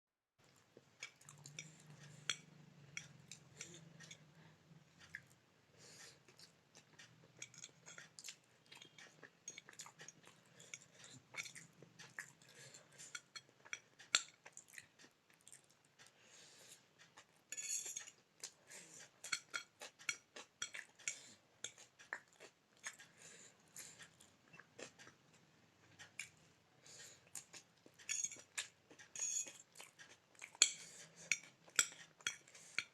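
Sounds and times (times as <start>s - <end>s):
close-up chewing: 0.4s - 4.4s, 6.0s - 32.9s
fork scraping a plate: 1.4s - 4.3s, 12.6s - 14.3s, 17.5s - 18.2s, 28.0s - 32.9s.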